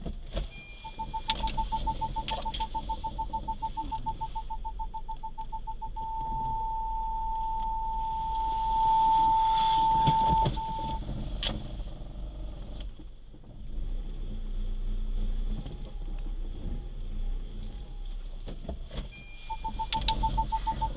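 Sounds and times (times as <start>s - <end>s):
car engine rumble: 0.0s - 20.9s
car warning beeping: 0.3s - 11.6s, 15.6s - 20.9s
clicks: 0.4s - 6.4s, 18.0s - 20.9s.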